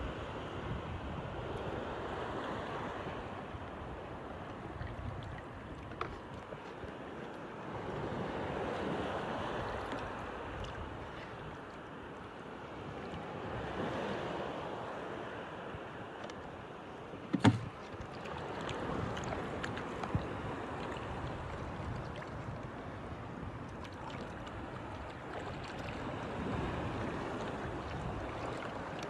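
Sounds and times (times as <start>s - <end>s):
water washing against boat: 17.1s - 29.0s.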